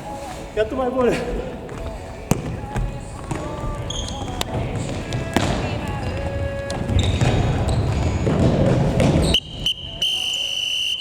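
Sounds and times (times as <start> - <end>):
players' voices echoing: 0.0 - 11.0
ball knocks and bounces: 1.7 - 9.3.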